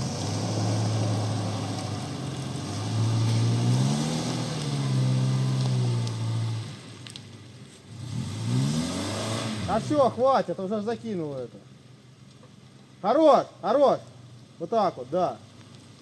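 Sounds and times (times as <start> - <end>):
off-road vehicle engine revving: 0.0 - 7.0, 7.9 - 11.0.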